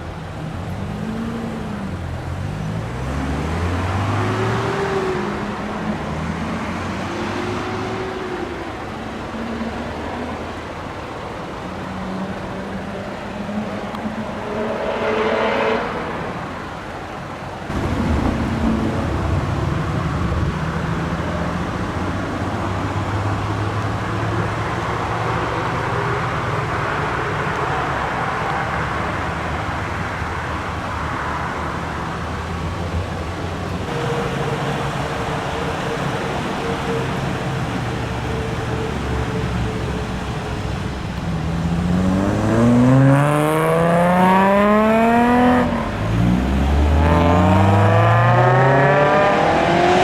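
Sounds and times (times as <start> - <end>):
car engine revving: 0.0 - 50.0
car engine idling: 16.5 - 42.8.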